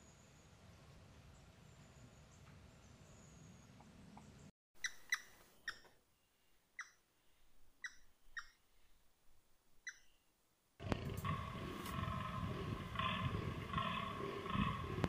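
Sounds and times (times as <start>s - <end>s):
bird chirping: 1.6s - 9.1s, 9.8s - 15.0s
faint low rumble: 10.8s - 15.0s.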